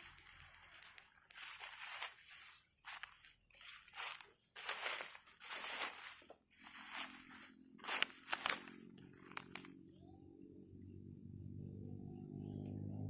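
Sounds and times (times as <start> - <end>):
footsteps crunching dry litter: 0.0 - 9.7.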